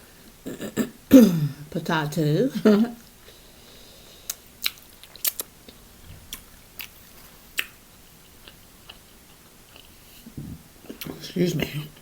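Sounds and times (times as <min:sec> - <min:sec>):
person chewing: 0:04.2 - 0:11.2
wet mouth clicks and smacks: 0:04.3 - 0:05.5.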